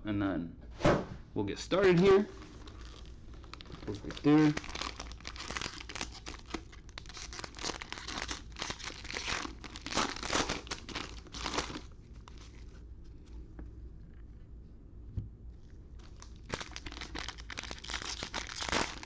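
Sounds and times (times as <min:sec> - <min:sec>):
wrappers tearing and crinkling: 0:01.8 - 0:12.7, 0:16.0 - 0:19.0.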